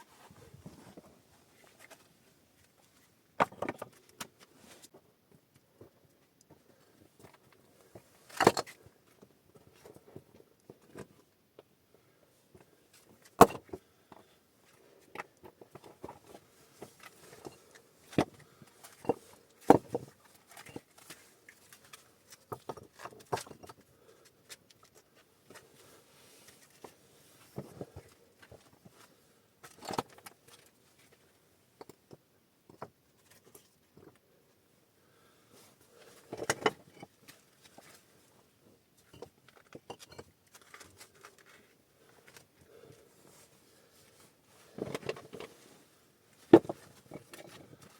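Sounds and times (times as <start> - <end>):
soft rustling and scraping: 0.0 - 3.2, 3.8 - 5.0, 14.1 - 32.2, 35.2 - 47.9.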